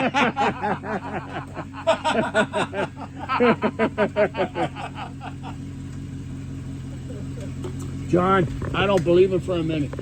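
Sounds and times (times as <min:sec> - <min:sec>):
person laughing: 0:00.0 - 0:05.6, 0:06.9 - 0:07.6
car engine idling: 0:00.0 - 0:10.0.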